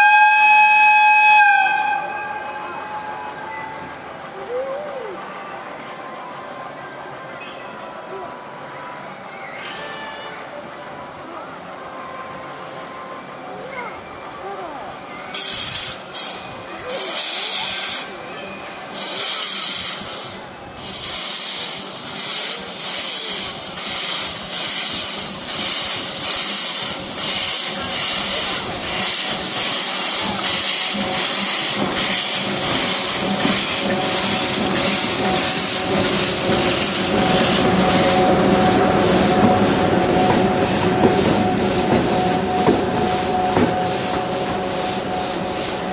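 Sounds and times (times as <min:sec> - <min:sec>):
continuous steam hiss: 0:01.8 - 0:45.9
electric locomotive whine: 0:10.0 - 0:45.9
steam locomotive chuffing: 0:15.3 - 0:45.9.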